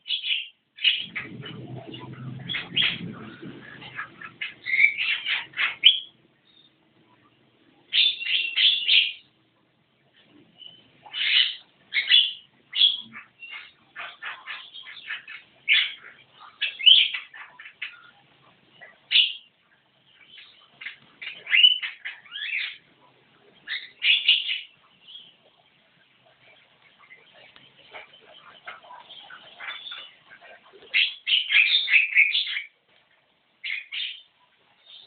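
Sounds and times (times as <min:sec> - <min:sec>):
myna chattering harsh calls: 0:00.8 - 0:06.2
low rumble: 0:01.0 - 0:04.6.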